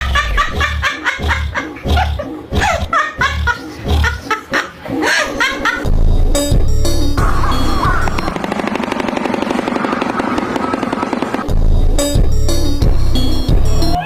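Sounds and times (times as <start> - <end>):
music with heavy beat: 0.0 - 4.5, 5.8 - 8.4, 10.7 - 14.0.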